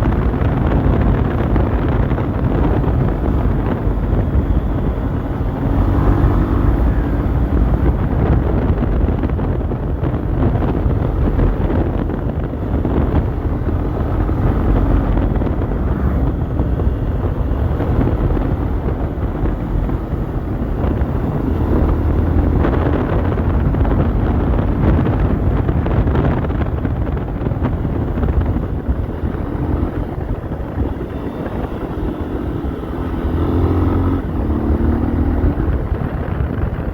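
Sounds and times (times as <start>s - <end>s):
motorcycle engine running: 0.0s - 36.9s
wind buffeting microphone: 0.0s - 36.9s.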